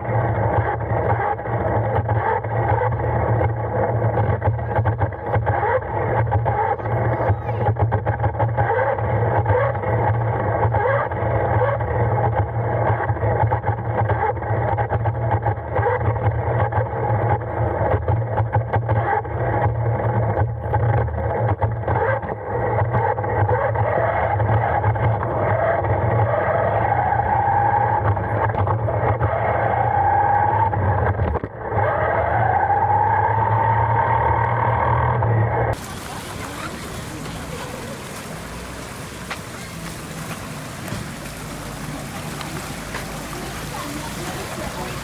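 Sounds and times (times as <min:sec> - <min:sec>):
wheels rattling over road: 0:35.8 - 0:45.0.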